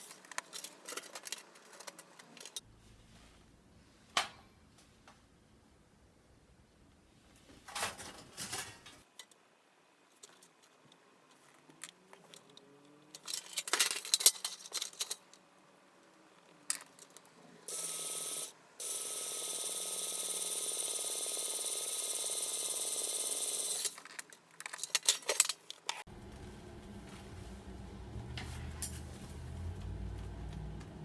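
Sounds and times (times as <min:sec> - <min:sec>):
metal clinks and rattles: 0:13.1 - 0:15.3, 0:23.7 - 0:25.9.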